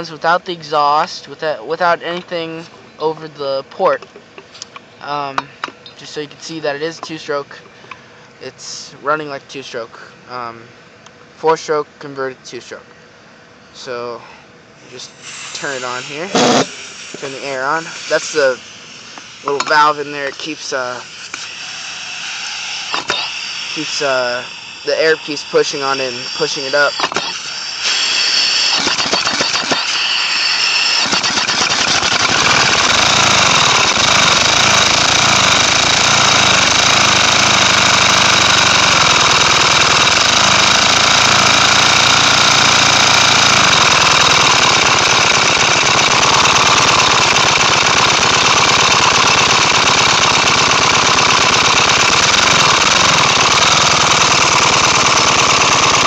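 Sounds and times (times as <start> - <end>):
compressed-air engine chattering: 15.5 - 56.0.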